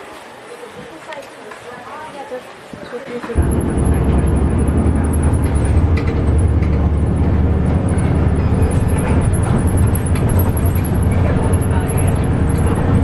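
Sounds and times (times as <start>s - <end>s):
bus engine and road rumble: 3.1s - 13.0s.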